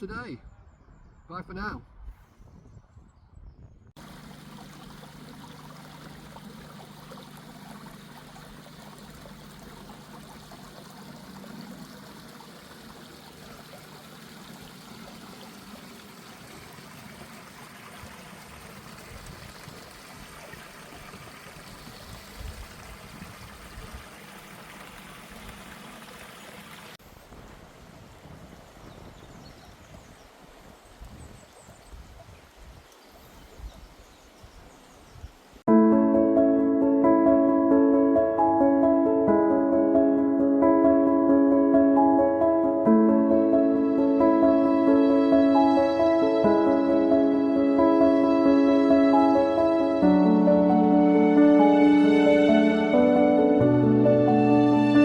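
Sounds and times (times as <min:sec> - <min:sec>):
stream rushing water: 0:04.0 - 0:29.1.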